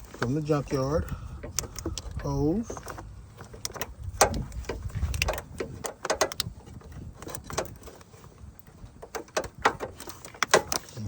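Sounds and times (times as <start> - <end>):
clicks and knocks on hose fittings: 0.0 - 11.0.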